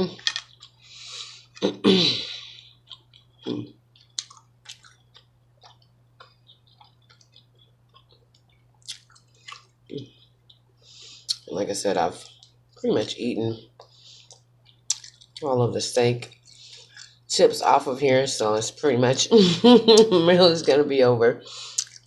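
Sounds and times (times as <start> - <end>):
person chewing food: 0.0 - 11.5, 12.2 - 12.8, 13.7 - 15.5, 16.2 - 17.3, 21.6 - 22.0
faint low hum: 0.0 - 22.0.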